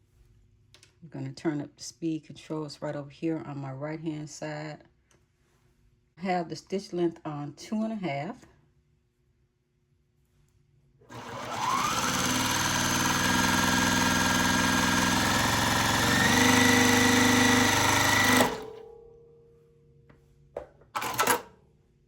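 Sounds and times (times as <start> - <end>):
sewing machine sewing fast: 11.1 - 18.8, 21.0 - 21.5.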